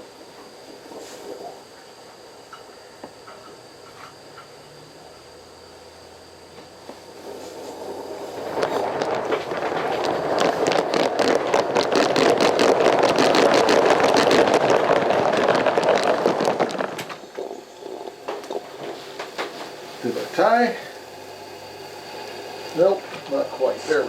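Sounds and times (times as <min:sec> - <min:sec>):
steam locomotive exhaust beats: 0:06.0 - 0:24.0.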